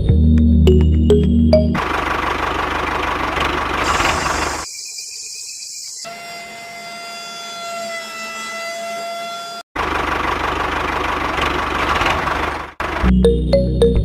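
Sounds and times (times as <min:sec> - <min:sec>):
background music: 0:00.0 - 0:01.8, 0:13.0 - 0:14.0
rough mechanical running noise: 0:01.8 - 0:04.8, 0:05.8 - 0:13.2
small electric motor whining: 0:03.8 - 0:09.7.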